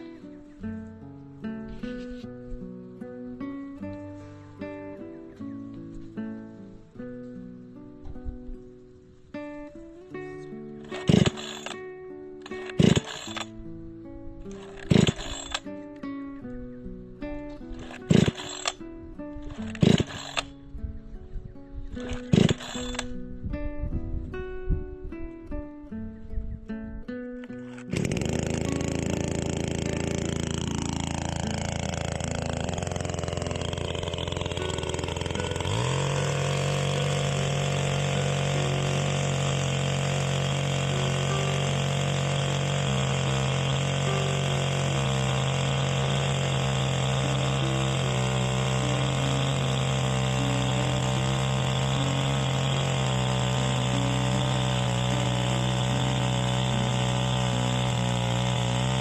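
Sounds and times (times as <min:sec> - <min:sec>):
engine running: 0:10.8 - 0:11.8, 0:12.4 - 0:13.6, 0:14.5 - 0:15.7, 0:17.6 - 0:18.8, 0:19.4 - 0:20.5, 0:22.0 - 0:23.1, 0:27.5 - 0:59.0.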